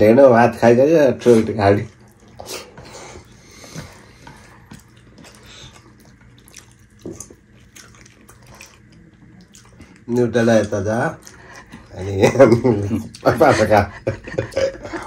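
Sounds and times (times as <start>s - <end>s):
wet chewing and lip-smacking: 1.9s - 12.0s.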